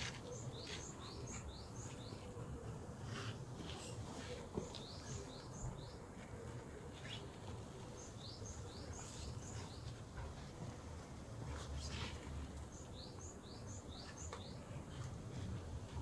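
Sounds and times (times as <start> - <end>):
small birds chirping: 0.0 - 10.5, 11.5 - 16.0.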